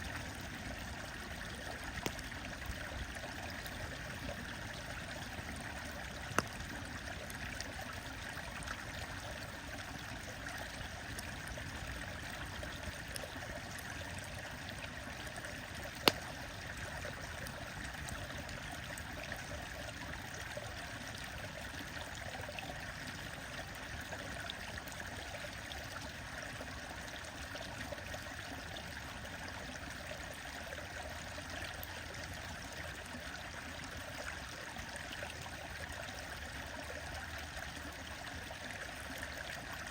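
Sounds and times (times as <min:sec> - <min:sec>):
stream running: 0:00.0 - 0:39.9
wood fire crackling: 0:01.7 - 0:02.5, 0:06.2 - 0:06.7, 0:15.8 - 0:16.6.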